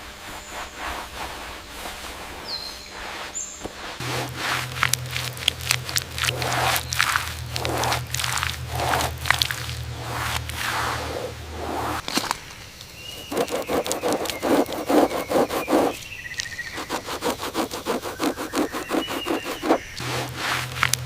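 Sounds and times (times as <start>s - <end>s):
rapid rhythmic scraping strokes: 3.8s - 12.0s, 13.1s - 21.0s.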